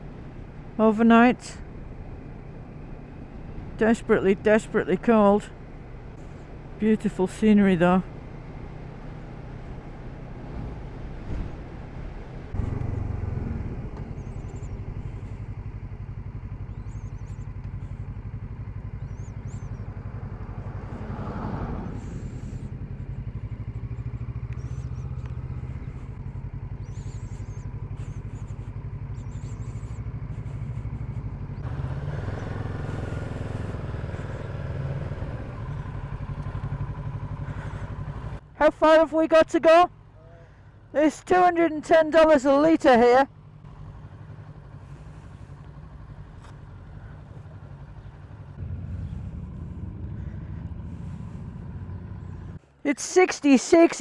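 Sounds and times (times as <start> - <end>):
motorcycle engine running: 0.0 - 38.8, 39.9 - 41.8, 42.5 - 54.0.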